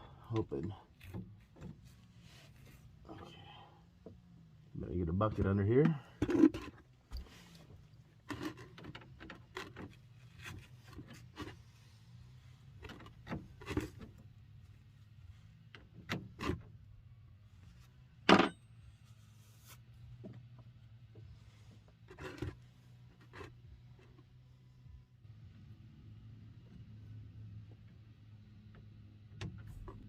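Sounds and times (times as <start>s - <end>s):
handling knocks clicks and scrapes: 0.2s - 4.2s, 5.2s - 16.9s, 17.6s - 24.5s.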